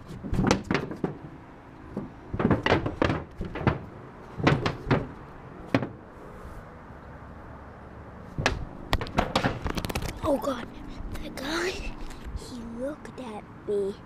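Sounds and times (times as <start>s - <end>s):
knocks and thumps of climbing: 0.0s - 6.1s, 8.3s - 12.4s.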